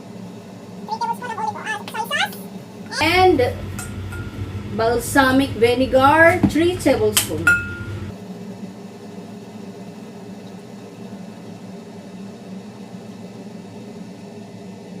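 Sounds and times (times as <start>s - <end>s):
steady machine hum: 0.0s - 8.2s.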